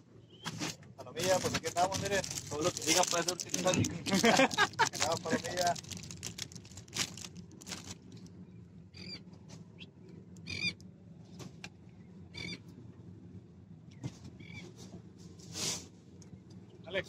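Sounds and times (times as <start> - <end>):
low steady rumble: 0.0 - 17.0
short pitched bird calls: 8.9 - 10.8.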